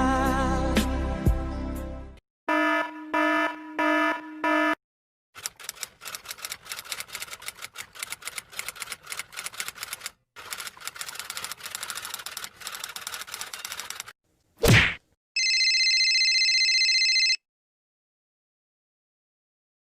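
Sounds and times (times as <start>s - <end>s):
typewriter keystroke clacks: 5.4s - 14.1s.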